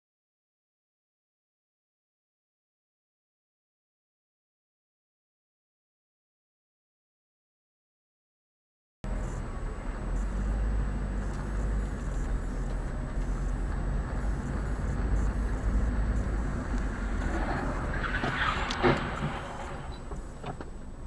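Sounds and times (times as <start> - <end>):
car engine and road rumble: 9.0 - 21.0
rushing noise: 9.1 - 20.5.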